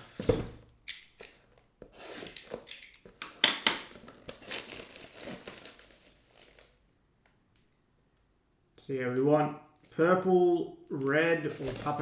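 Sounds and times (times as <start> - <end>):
plastic wrapping crinkling and tearing: 3.9 - 6.8, 10.9 - 12.0.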